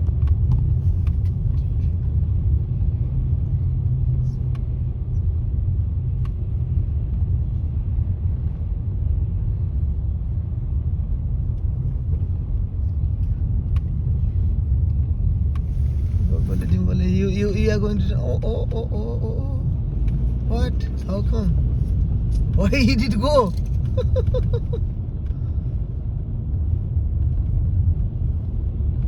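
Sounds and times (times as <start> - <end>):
car driving rumble: 0.0 - 29.0.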